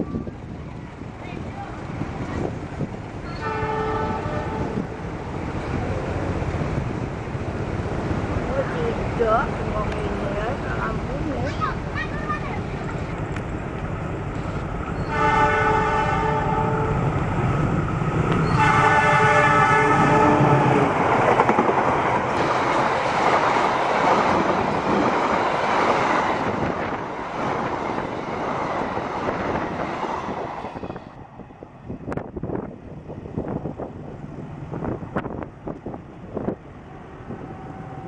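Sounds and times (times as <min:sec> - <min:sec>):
train rushing past: 0:00.0 - 0:38.0
locomotive horn blasts: 0:03.4 - 0:04.8, 0:15.1 - 0:17.0, 0:18.4 - 0:20.8.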